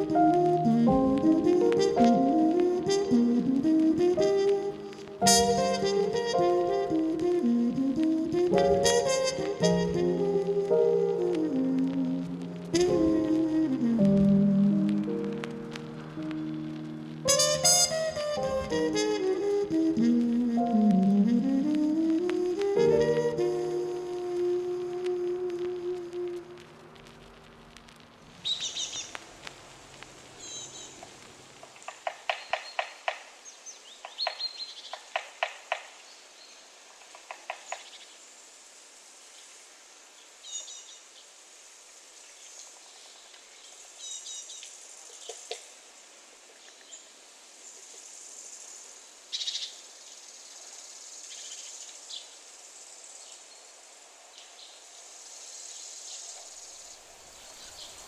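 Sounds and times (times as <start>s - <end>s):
small birds chirping: 27.0s - 31.5s.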